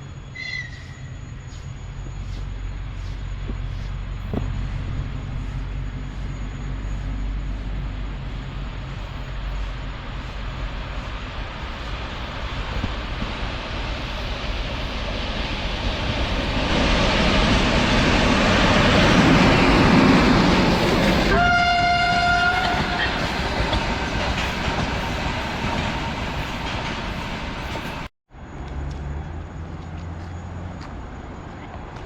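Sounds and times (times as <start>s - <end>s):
diesel locomotive passing: 0.0s - 32.0s
locomotive horn blast: 21.3s - 23.3s.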